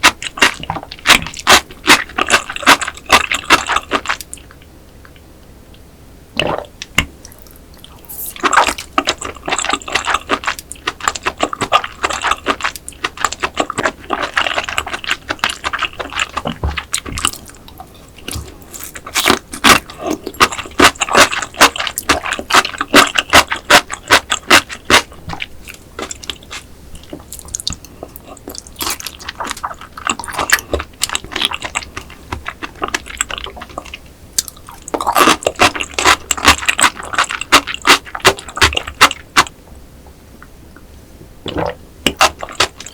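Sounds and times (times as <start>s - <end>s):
close chewing mouth clicks: 25.7s - 39.5s.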